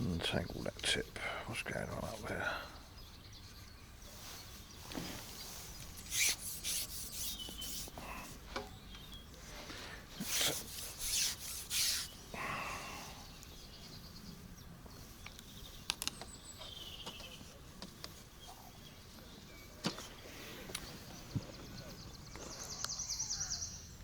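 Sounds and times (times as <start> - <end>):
soft rasp: 3.5 - 8.4, 10.2 - 12.2
fishing tackle rubbing swishes: 5.2 - 8.0, 10.2 - 12.2.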